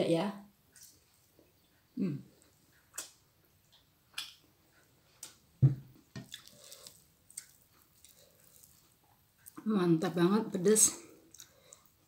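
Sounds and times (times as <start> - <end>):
wet mouth chewing clicks: 2.8 - 4.4, 6.2 - 9.6, 11.3 - 12.0
low thump: 5.6 - 5.9.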